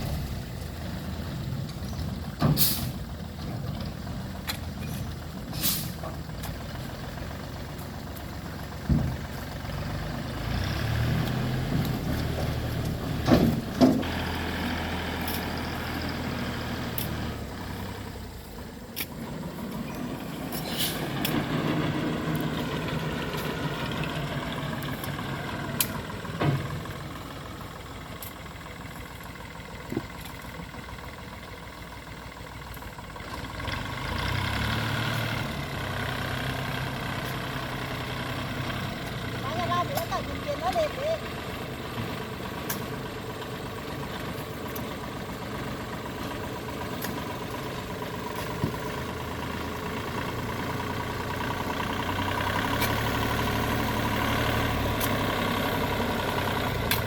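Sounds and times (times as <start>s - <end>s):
diesel engine revving: 0.0s - 57.0s
machinery knocks and clanks: 8.7s - 9.5s, 11.6s - 14.2s.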